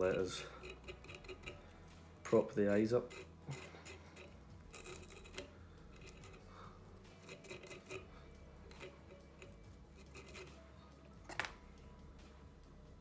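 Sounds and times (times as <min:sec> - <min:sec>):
small clicks and rustles of tools: 0:03.0 - 0:11.6.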